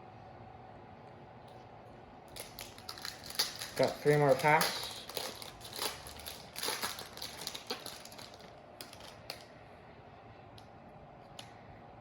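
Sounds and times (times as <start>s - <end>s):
foil wrapper crinkling: 2.3s - 9.4s.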